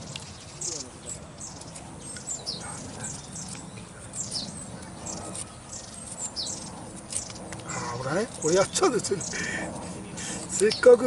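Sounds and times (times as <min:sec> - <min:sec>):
birds chirping: 0:00.0 - 0:11.0
steady background hiss: 0:00.0 - 0:11.0.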